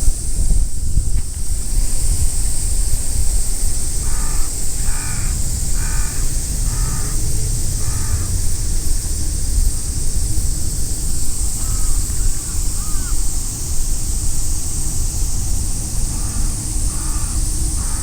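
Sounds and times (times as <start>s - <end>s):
wind noise on microphone: 0.0s - 18.0s
crow cawing: 4.0s - 7.2s, 7.8s - 8.3s, 11.6s - 13.2s, 16.2s - 18.0s.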